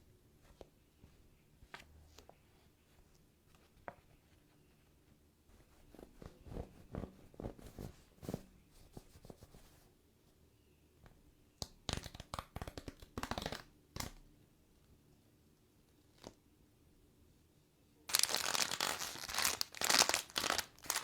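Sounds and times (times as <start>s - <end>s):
plastic packaging rustling: 18.1s - 21.0s
wrapper crinkling and tearing: 18.1s - 21.0s.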